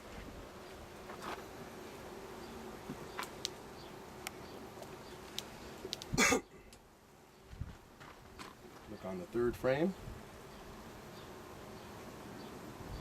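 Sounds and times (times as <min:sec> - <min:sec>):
bees buzzing: 0:00.0 - 0:13.0
faint clicks: 0:04.2 - 0:06.1.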